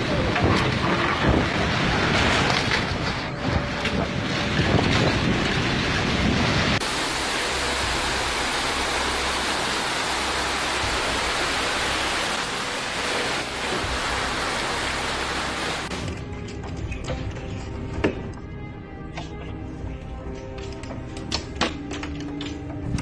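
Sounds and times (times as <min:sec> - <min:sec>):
wind buffeting microphone: 0:00.0 - 0:06.8
dense hiss of rain: 0:00.0 - 0:15.9.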